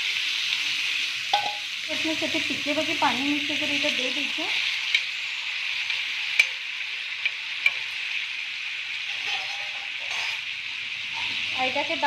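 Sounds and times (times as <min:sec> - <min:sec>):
meat sizzling in oil: 0:00.0 - 0:12.0
steel spoon clicking on pan: 0:05.9 - 0:06.6, 0:07.2 - 0:07.9.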